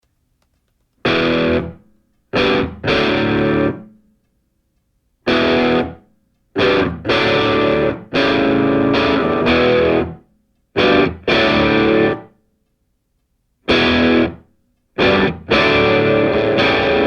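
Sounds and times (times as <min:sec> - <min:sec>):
distorted electric guitar chords: 0:01.0 - 0:01.8, 0:02.4 - 0:04.0, 0:05.3 - 0:06.0, 0:06.6 - 0:10.2, 0:10.8 - 0:12.3, 0:13.7 - 0:17.0.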